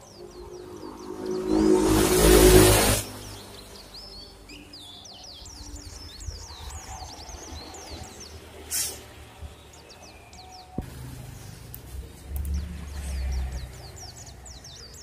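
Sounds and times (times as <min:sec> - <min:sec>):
small birds chirping: 0:00.0 - 0:15.0
loud rush of noise: 0:01.2 - 0:03.4.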